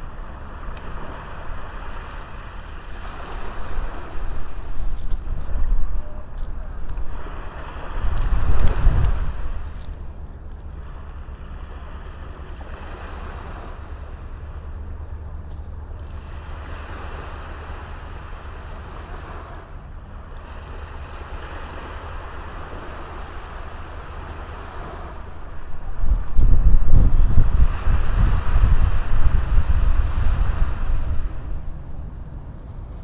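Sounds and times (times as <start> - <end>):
sea waves washing onto beach: 0.0 - 33.0
wind rumble on microphone: 0.0 - 33.0.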